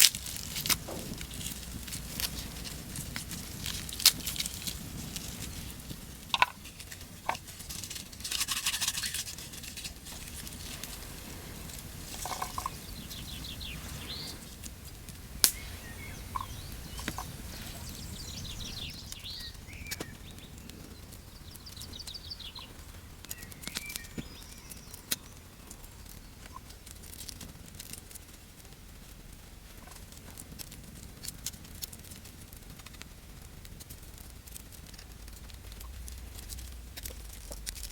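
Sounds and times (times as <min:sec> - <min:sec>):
brief rustle: 0:00.0 - 0:19.2
birds chirping: 0:00.2 - 0:08.1, 0:08.9 - 0:27.0, 0:33.9 - 0:37.9.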